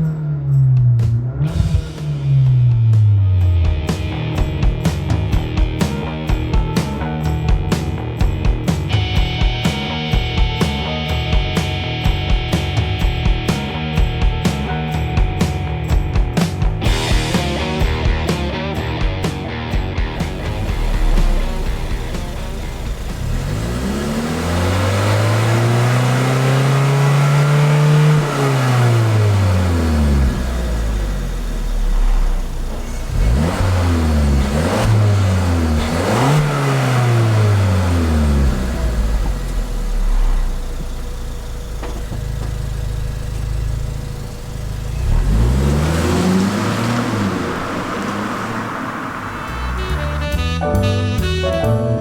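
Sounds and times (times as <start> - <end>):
car engine revving: 0.0 - 50.6
engine idling: 20.0 - 50.4.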